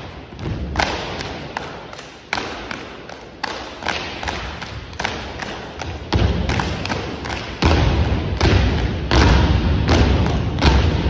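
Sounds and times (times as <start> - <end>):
hand claps and body slaps: 0.7 - 10.9
heavy foot stomps: 7.6 - 11.0.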